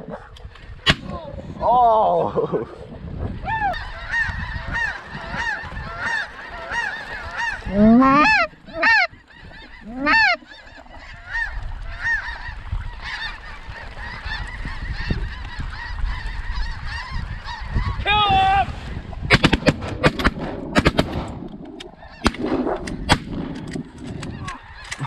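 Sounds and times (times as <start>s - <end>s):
snow goose honks: 3.7s - 13.4s.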